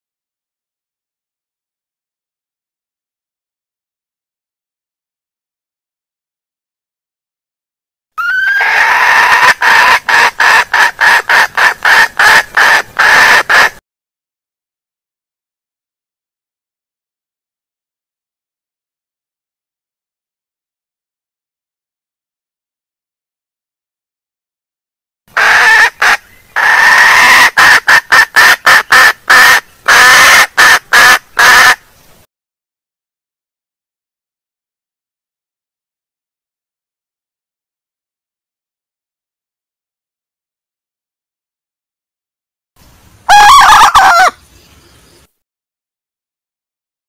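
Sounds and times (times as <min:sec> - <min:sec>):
hen calling and clucking: 0:08.2 - 0:13.8, 0:25.3 - 0:31.8, 0:43.3 - 0:44.6.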